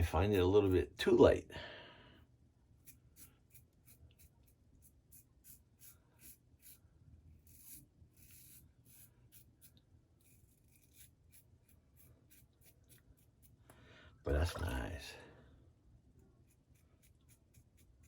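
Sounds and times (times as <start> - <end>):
razor scraping stubble: 2.8 - 13.6, 16.4 - 18.0.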